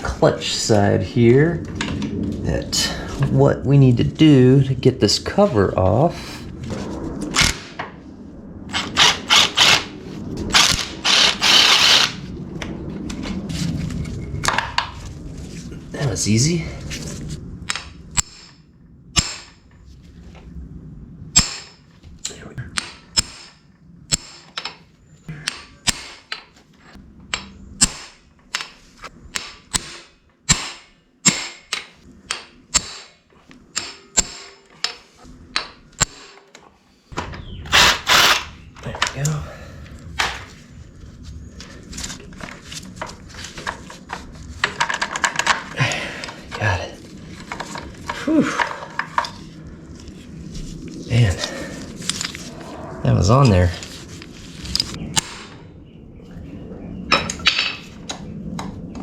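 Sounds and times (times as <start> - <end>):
hammer striking metal: 19.2 - 19.6, 29.3 - 35.0
power driver bursts: 37.7 - 38.6.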